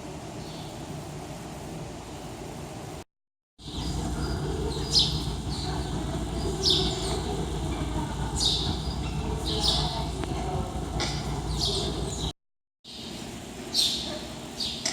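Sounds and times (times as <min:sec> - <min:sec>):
birds chirping: 0:03.6 - 0:12.3
low background rumble: 0:03.6 - 0:12.3.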